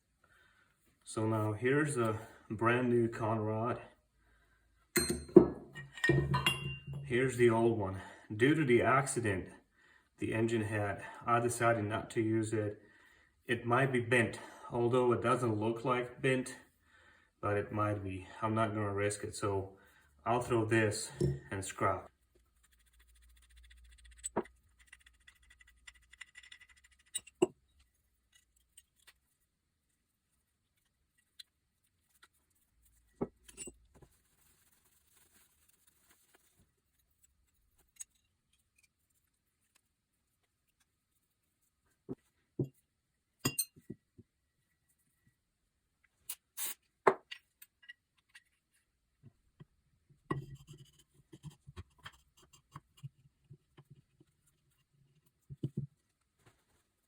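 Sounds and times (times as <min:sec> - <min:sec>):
metal engine parts clinking: 0:05.0 - 0:07.1.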